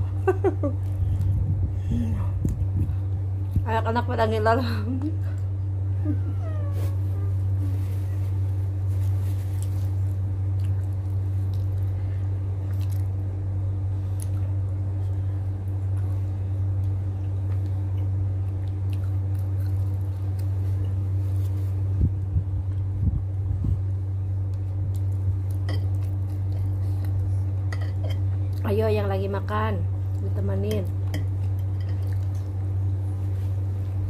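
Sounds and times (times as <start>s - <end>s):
steady low hum: 0.0s - 34.0s
person chewing food: 9.0s - 13.3s, 16.8s - 21.7s.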